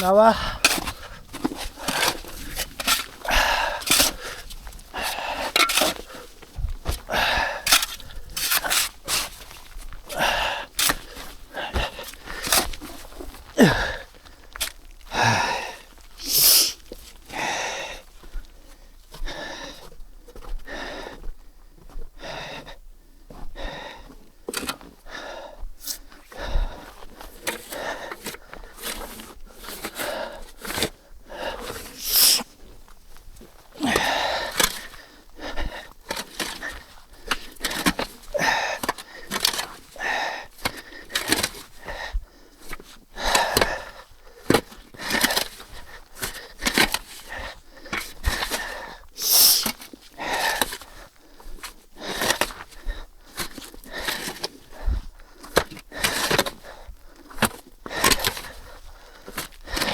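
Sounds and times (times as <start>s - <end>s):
snow shovel scraping: 0.0s - 6.4s, 7.0s - 13.9s, 16.2s - 16.9s, 31.6s - 32.6s, 48.0s - 50.9s.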